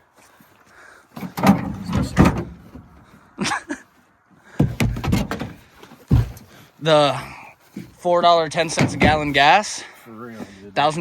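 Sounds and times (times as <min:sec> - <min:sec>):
hard clunks and knocks: 0:01.2 - 0:03.2, 0:04.4 - 0:06.6, 0:07.7 - 0:09.6.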